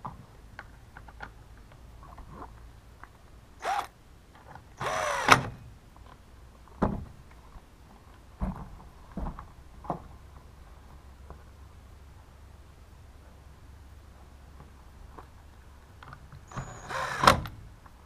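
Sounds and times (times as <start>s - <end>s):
small electric motor whirring: 3.6s - 3.9s, 4.8s - 5.5s, 16.5s - 17.4s.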